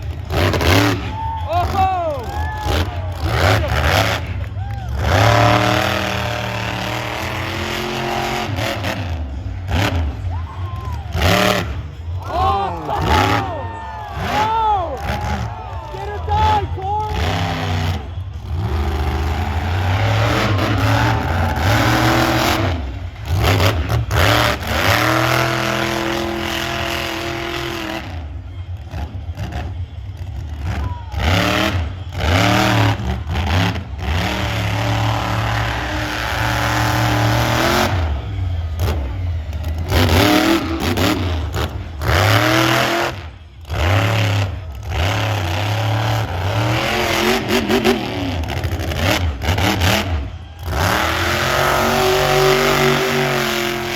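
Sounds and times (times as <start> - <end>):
monster truck engine revving: 0.0 - 53.9.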